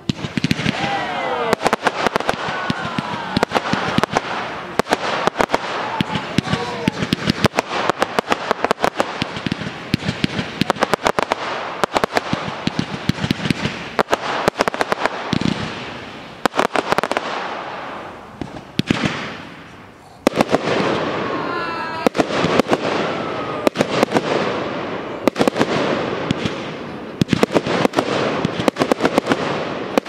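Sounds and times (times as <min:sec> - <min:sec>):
steady hiss: 0:00.0 - 0:23.0
fireworks banging: 0:00.0 - 0:30.0.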